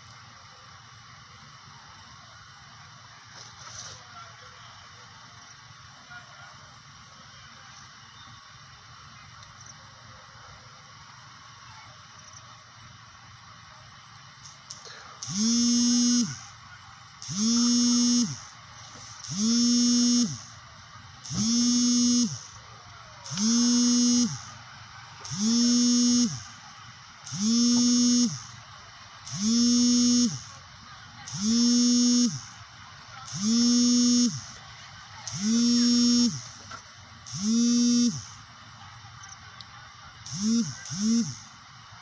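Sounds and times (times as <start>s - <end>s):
small electric motor buzzing: 14.4s - 38.6s, 40.2s - 41.6s.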